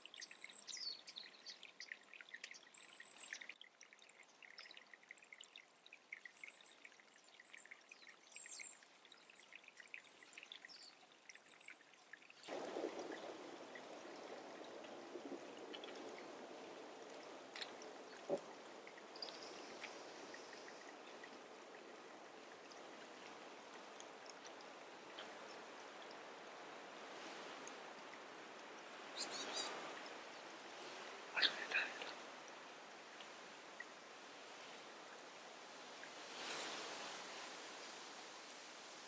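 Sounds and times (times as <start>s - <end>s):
small birds chirping: 0.0s - 3.6s, 6.2s - 27.7s, 28.4s - 32.4s
running water: 0.0s - 39.0s.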